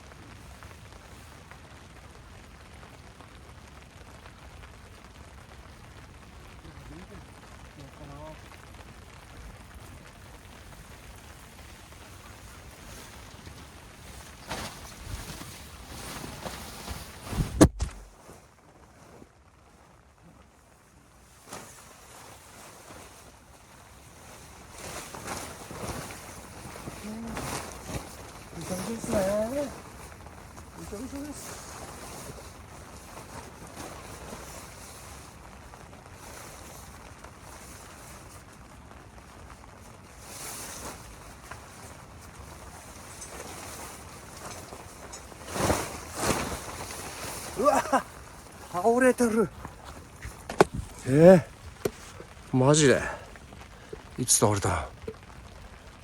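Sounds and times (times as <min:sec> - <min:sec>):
faint background noise: 0:00.0 - 0:56.0
rustling of wet camping gear: 0:00.0 - 0:56.0
steady rain falling: 0:00.0 - 0:56.0.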